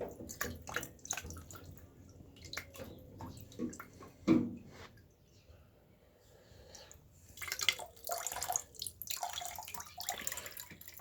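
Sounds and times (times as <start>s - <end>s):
water dripping into a cup: 0.0s - 4.0s, 6.7s - 11.0s.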